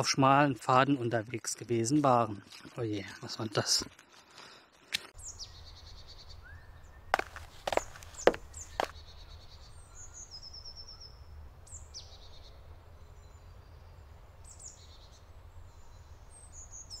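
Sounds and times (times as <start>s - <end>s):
birds chirping: 5.2s - 17.0s.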